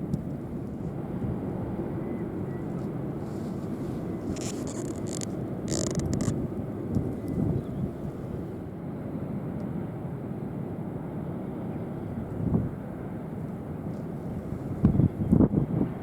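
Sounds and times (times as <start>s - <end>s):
steady low rumble: 0.0s - 8.8s
wind buffeting microphone: 0.0s - 8.8s, 12.0s - 16.0s.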